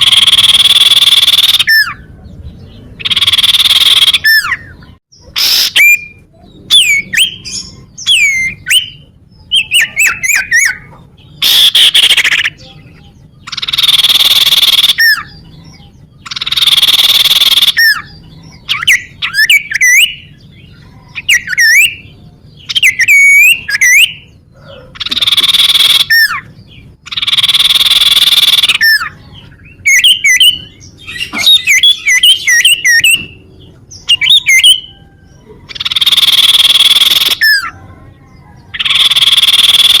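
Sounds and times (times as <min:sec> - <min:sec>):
bird whistled notes: 0:34.1 - 0:37.7.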